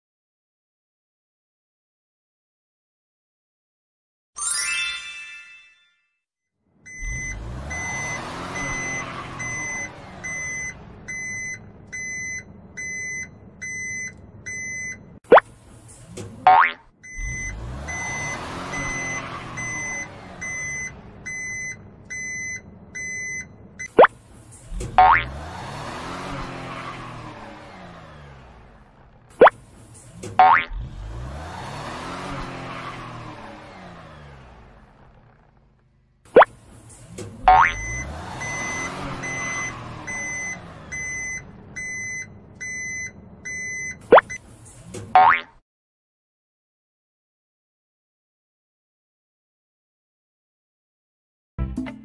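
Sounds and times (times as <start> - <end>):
low engine rumble: 6.7 - 32.3, 32.9 - 45.2
reversing alarm beeping: 6.9 - 15.1, 17.0 - 24.0, 37.5 - 44.4.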